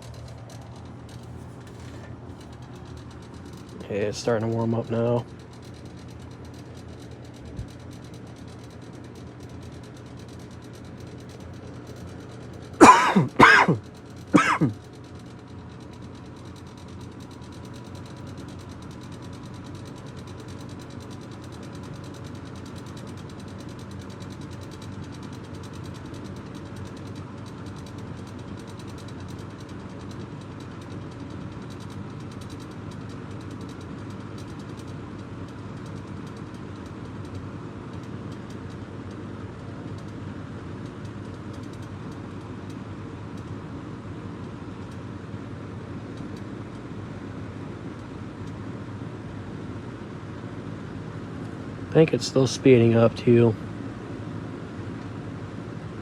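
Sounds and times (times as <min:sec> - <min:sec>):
box fan humming: 0:00.0 - 0:56.0
person coughing: 0:12.8 - 0:13.8, 0:14.4 - 0:14.8.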